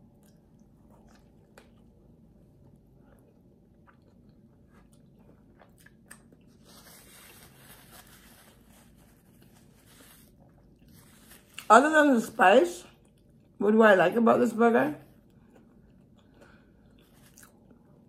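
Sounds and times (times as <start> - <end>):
person chewing food: 0.0 - 7.5, 8.5 - 11.7, 12.9 - 13.6, 15.2 - 18.0.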